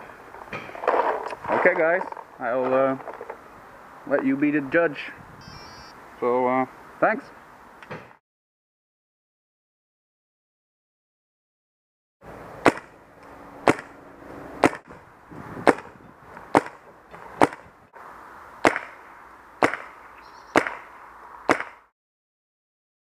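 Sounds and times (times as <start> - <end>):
paintball marker firing sharp shots: 12.6 - 12.9, 13.6 - 13.9, 14.6 - 14.9, 15.6 - 15.9, 16.5 - 16.8, 17.4 - 17.7, 18.6 - 19.0, 19.6 - 20.9, 21.5 - 21.9.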